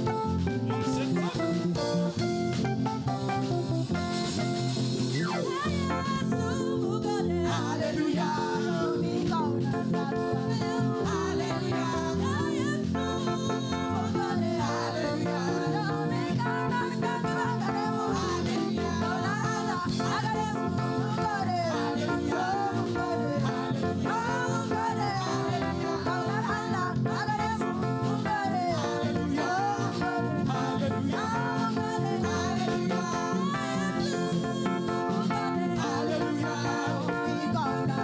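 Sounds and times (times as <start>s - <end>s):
band with guitar and bass: 0.0s - 38.0s
voices singing praise music: 0.8s - 2.2s, 5.0s - 38.0s.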